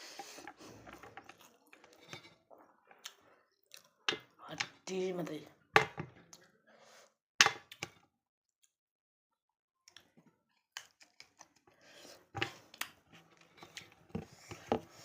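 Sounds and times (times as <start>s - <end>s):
close eating and chewing: 0.0s - 4.9s, 9.8s - 15.0s.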